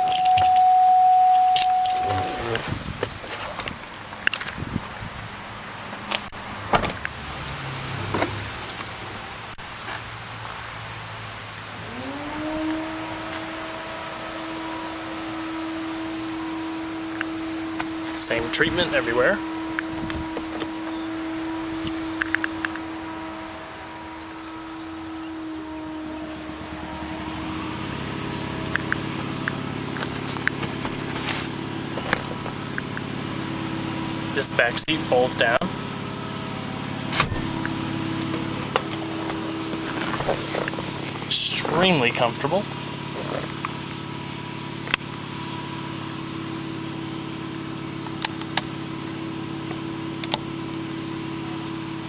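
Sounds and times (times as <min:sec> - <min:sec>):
low mechanical hum: 0:00.0 - 0:05.6, 0:10.5 - 0:52.0.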